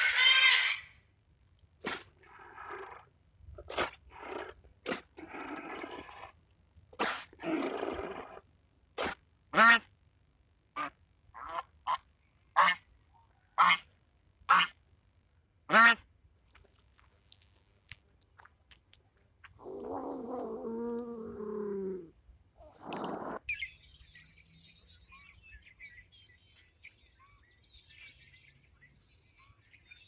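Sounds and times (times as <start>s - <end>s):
duck quack: 9.0s - 9.9s, 12.6s - 12.8s, 13.6s - 13.9s, 14.5s - 14.8s, 15.7s - 16.0s
faint high bird chirping: 23.0s - 30.0s.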